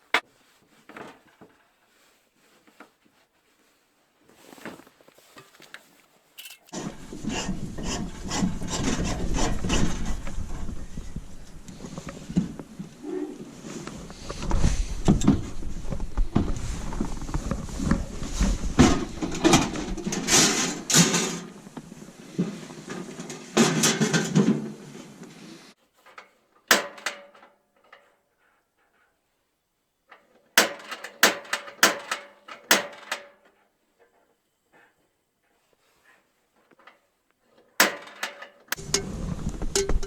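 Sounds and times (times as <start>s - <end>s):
gear rustling: 4.3s - 6.8s
doors or drawers clunking: 18.8s - 21.6s, 26.1s - 27.5s, 30.6s - 33.4s, 37.8s - 38.8s
sharp knocks and clicks: 30.6s - 33.4s.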